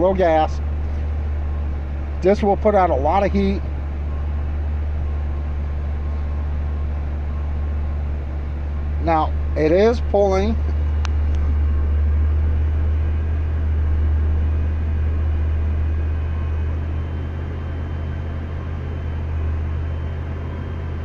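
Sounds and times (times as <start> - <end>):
van engine idling: 0.0 - 21.0.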